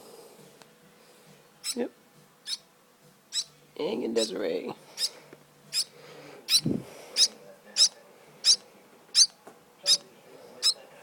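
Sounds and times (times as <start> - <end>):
baby bird chirping: 1.6 - 2.7, 3.3 - 3.5, 5.0 - 10.8.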